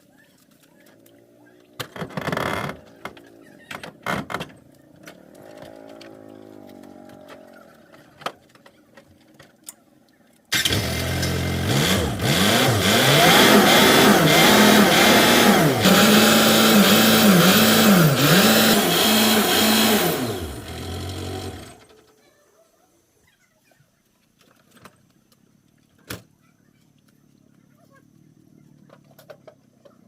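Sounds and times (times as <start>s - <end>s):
engine revving: 10.5s - 21.9s.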